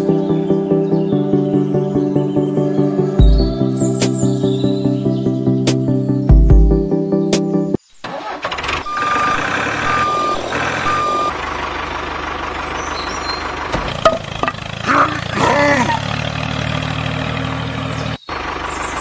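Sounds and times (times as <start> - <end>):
truck engine running: 0.0 - 6.7, 8.2 - 19.0
reversing alarm beeping: 8.8 - 11.4
gliding voice-like exclamation: 14.8 - 16.0.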